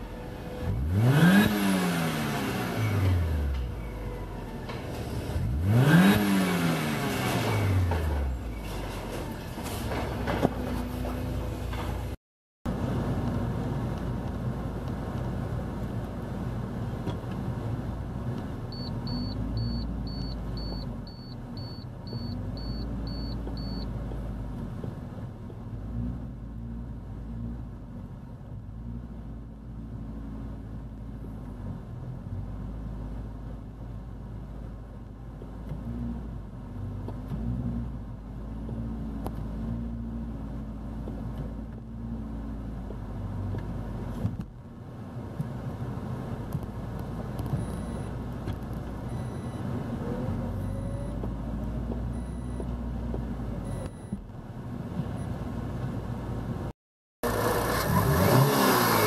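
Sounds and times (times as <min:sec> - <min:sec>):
car engine rumbling: 0:00.0 - 0:59.0
short high beeps: 0:18.8 - 0:23.8.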